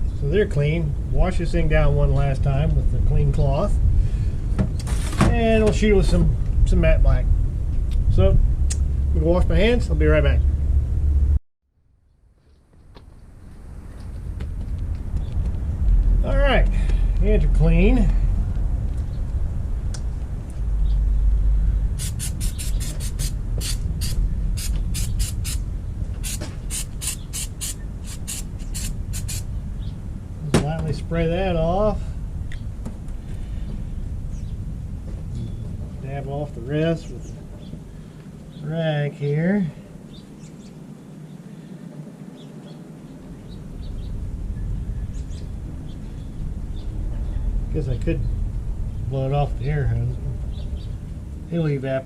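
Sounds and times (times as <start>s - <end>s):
low rumble: 0.0s - 11.4s, 13.2s - 27.1s, 27.8s - 38.5s
small birds chirping: 20.7s - 25.6s, 26.2s - 30.1s, 32.5s - 39.2s, 39.8s - 52.0s
trigger spray bottle spraying: 22.0s - 25.6s, 26.2s - 29.4s.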